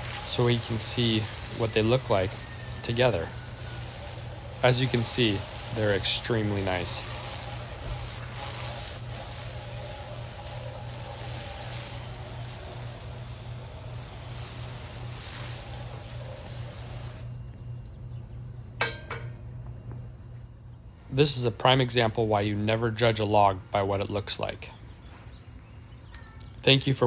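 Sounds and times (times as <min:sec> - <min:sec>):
water spraying onto boards: 0:00.0 - 0:17.4.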